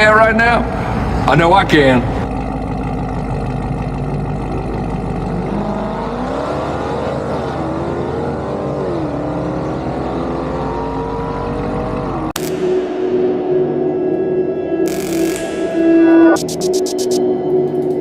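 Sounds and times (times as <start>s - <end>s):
racing car engine accelerating: 0.0s - 13.8s.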